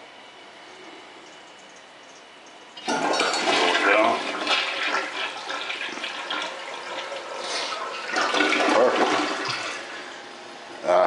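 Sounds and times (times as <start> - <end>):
toilet flushing: 2.8 - 10.3.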